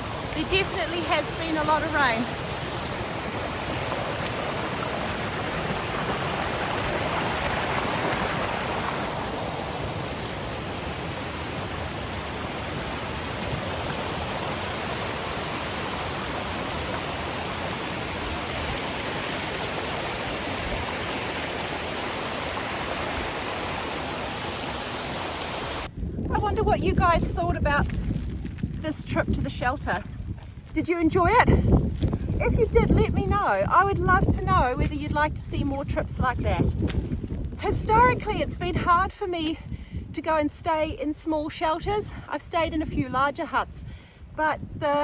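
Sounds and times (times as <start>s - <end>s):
mountain stream rushing: 0.0s - 25.9s.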